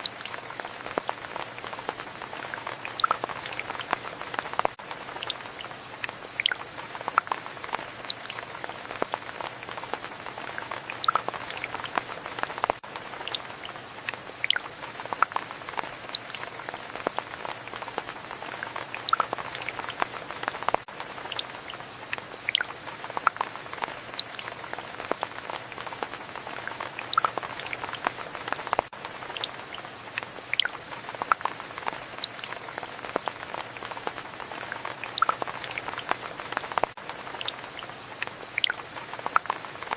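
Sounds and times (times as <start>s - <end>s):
raindrops pattering and dripping: 0.0s - 39.9s
steady rain falling: 0.0s - 39.9s.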